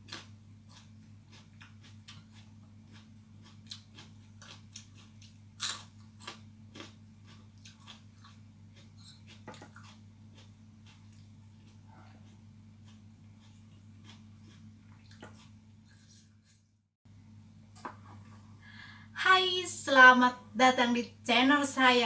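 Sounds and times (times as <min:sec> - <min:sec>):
crunchy bites: 0:00.0 - 0:11.4
wet chewing: 0:00.0 - 0:16.6
steady low hum: 0:00.0 - 0:22.0.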